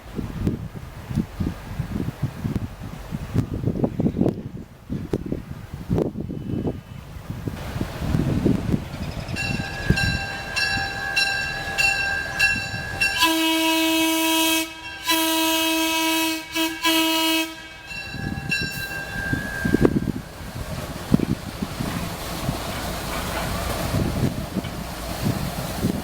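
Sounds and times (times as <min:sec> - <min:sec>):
locomotive bell ringing: 0:09.0 - 0:17.0, 0:17.6 - 0:20.3
locomotive horn signal: 0:09.6 - 0:20.2.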